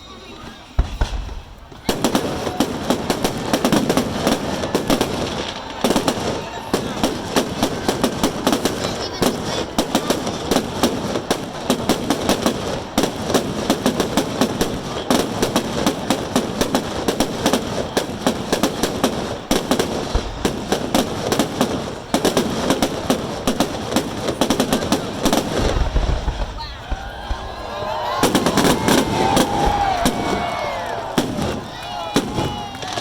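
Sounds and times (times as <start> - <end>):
fireworks bangs and crackles: 0.0 - 33.0.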